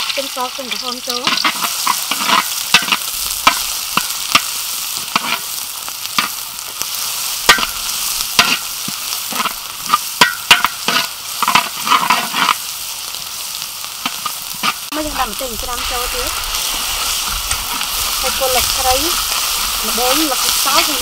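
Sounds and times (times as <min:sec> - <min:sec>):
food sizzling in oil: 0:00.0 - 0:21.0
metal spatula scraping pan: 0:00.7 - 0:05.5, 0:09.3 - 0:12.6.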